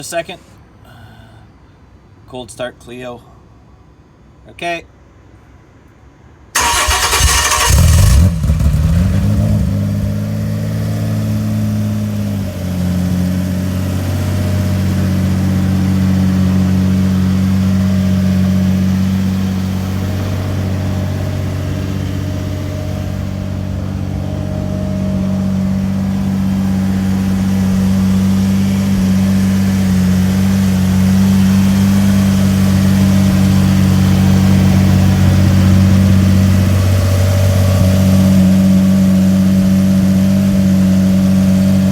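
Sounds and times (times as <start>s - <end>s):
engine cranking: 6.6s - 9.5s
car engine revving and idling: 6.6s - 41.9s.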